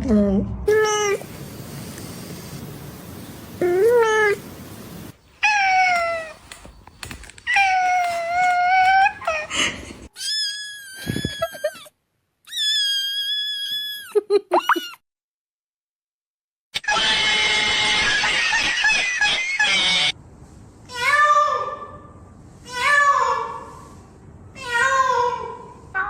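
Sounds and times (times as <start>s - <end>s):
cats meowing: 5.4s - 6.5s.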